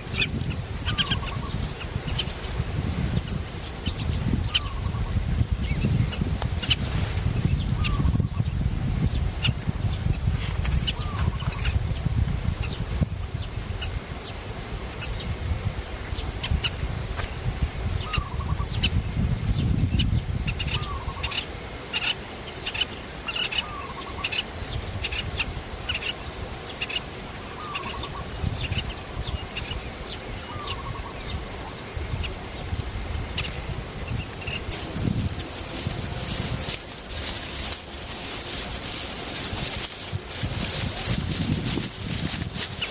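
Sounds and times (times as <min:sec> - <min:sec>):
small birds chirping: 0:00.0 - 0:14.4, 0:33.4 - 0:42.9.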